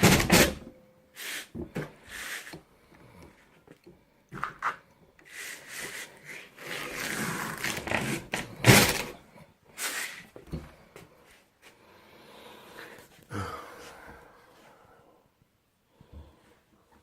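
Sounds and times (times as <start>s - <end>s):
door scraping on sandpaper: 1.2s - 2.5s, 5.3s - 10.4s.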